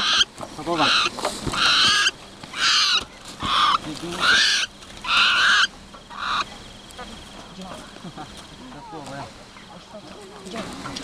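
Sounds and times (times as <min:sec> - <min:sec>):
bird squawking harshly: 0:00.0 - 0:06.5
high insect tone: 0:00.0 - 0:11.0.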